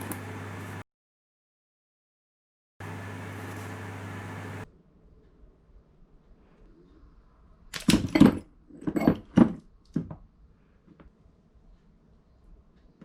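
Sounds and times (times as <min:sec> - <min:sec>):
tools knocking and clattering: 0:07.8 - 0:10.2.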